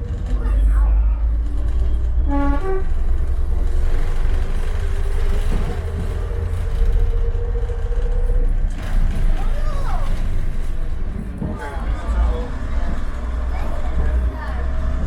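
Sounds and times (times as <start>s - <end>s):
train rumbling: 0.0s - 15.0s
train horn: 2.2s - 3.2s.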